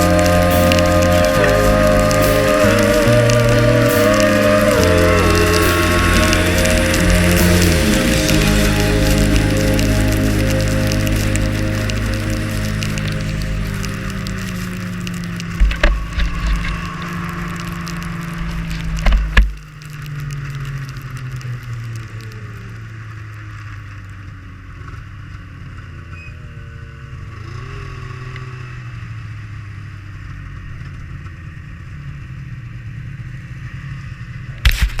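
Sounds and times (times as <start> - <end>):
snowmobile engine running: 0.0 - 19.6.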